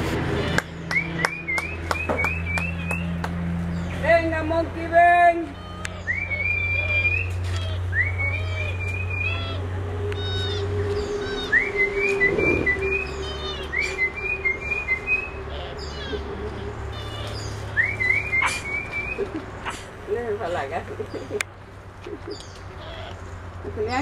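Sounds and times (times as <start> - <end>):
low hum: 0.0 - 20.2
bird whistled call: 6.0 - 16.3, 16.9 - 19.8
short high bird chips: 16.9 - 19.9.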